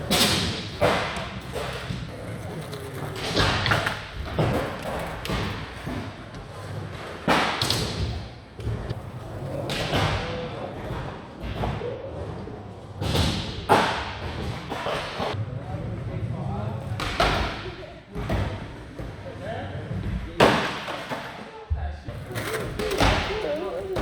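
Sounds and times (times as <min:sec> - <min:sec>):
sharp skateboard impacts: 0:00.0 - 0:11.8, 0:13.0 - 0:15.4, 0:17.0 - 0:18.6, 0:20.4 - 0:21.4, 0:22.2 - 0:24.0
skateboards rolling on ramps: 0:00.0 - 0:24.0.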